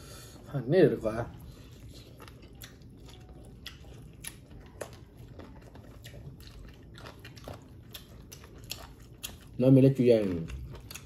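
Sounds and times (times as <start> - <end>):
people chewing food: 0.0 - 11.0
eating clicks and smacks: 2.1 - 9.6, 10.2 - 11.0.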